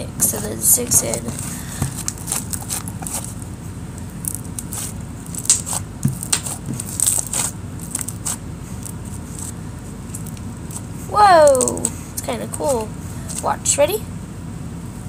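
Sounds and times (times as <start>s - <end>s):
crackling and squishing: 0.3s - 13.7s
slime being stirred: 0.9s - 3.5s, 4.2s - 11.0s.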